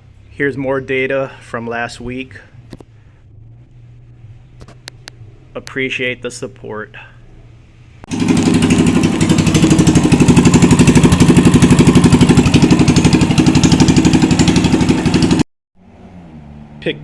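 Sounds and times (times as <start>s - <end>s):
small engine running: 8.1s - 15.4s.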